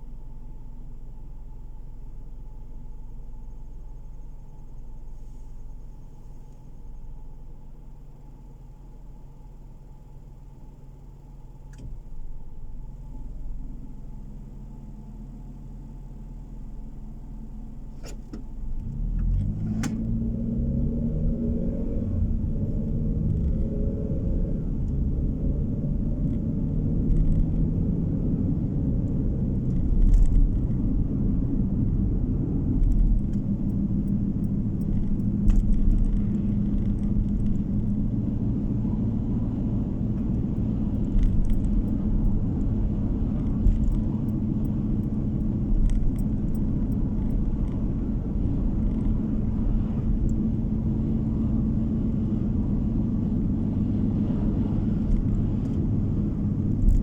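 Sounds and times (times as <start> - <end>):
car road and engine rumble: 0.0 - 57.0
thumps from road bumps: 17.9 - 20.2, 34.5 - 38.2.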